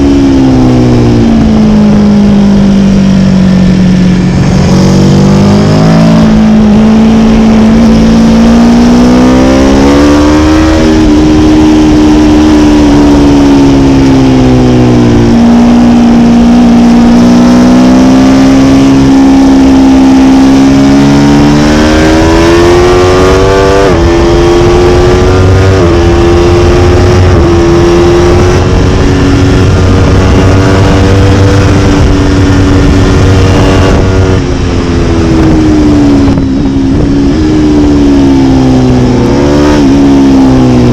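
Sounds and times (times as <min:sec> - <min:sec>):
motorcycle engine revving: 0:00.0 - 0:40.9
wind noise: 0:00.0 - 0:40.9.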